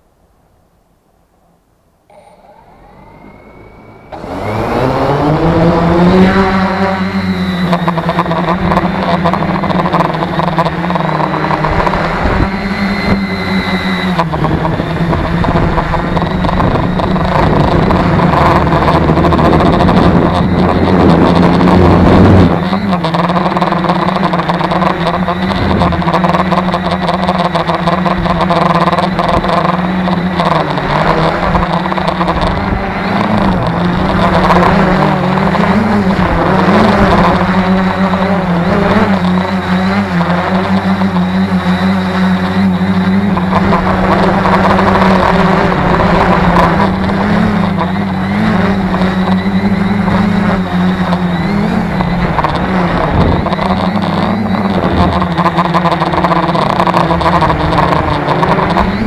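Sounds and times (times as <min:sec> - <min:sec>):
drone propellers humming: 0:01.6 - 0:59.0.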